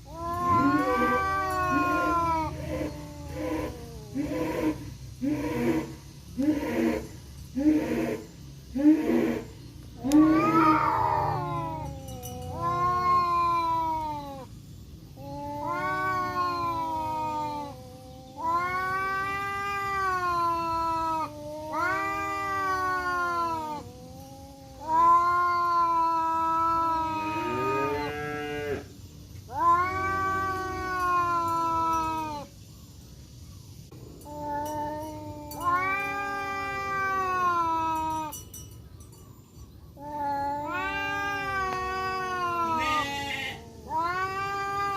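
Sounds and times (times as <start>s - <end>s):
tomcats yowling: 0.0s - 4.5s, 10.0s - 14.6s, 15.2s - 28.8s, 29.5s - 32.5s, 34.2s - 38.5s, 40.0s - 44.9s.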